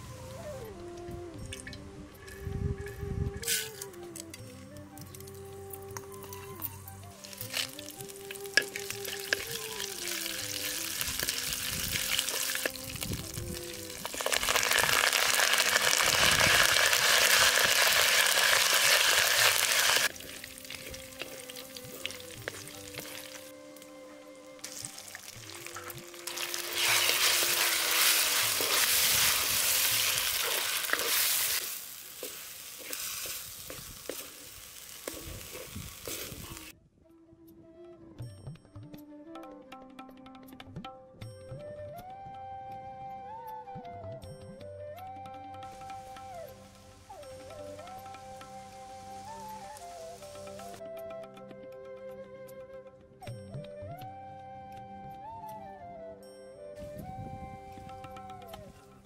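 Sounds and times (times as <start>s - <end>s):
quiet background music: 0.0s - 17.0s, 17.6s - 33.2s, 34.7s - 59.0s
food sizzling in hot oil: 7.1s - 23.5s, 24.6s - 36.7s.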